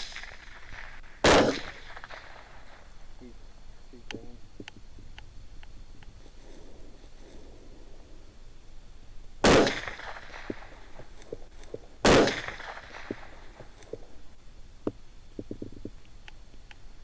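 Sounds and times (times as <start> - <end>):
suppressed rifle shots with echo: 0.0 - 4.4, 9.4 - 14.3.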